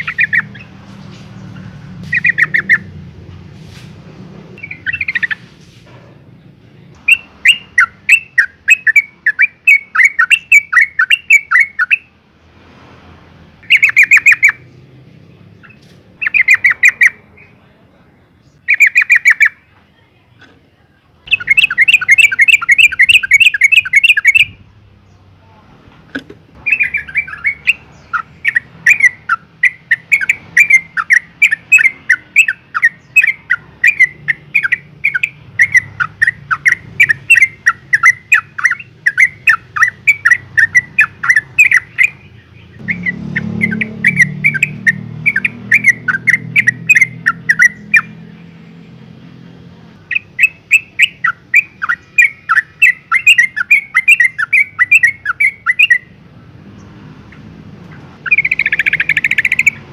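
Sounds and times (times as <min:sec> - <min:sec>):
bird chattering call: 0:00.0 - 0:03.0, 0:04.6 - 0:05.5, 0:07.0 - 0:12.1, 0:13.6 - 0:14.8, 0:15.6 - 0:17.6, 0:18.5 - 0:19.6, 0:21.3 - 0:24.6, 0:26.6 - 0:48.3, 0:50.0 - 0:56.2, 0:56.8 - 0:59.9.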